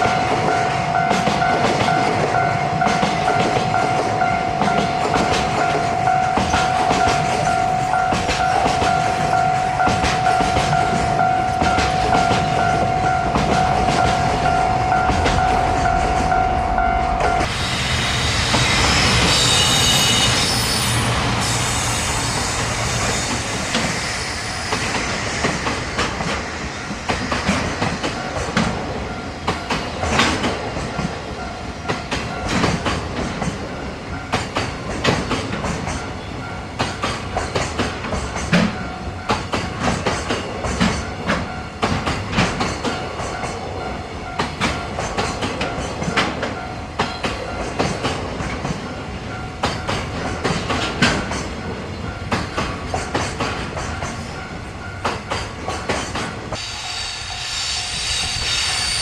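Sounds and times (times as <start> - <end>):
train wheels clicking over rail joints: 0.0 - 16.4, 17.2 - 59.0
high-pitched wheel squeal: 17.6 - 25.1, 56.6 - 59.0.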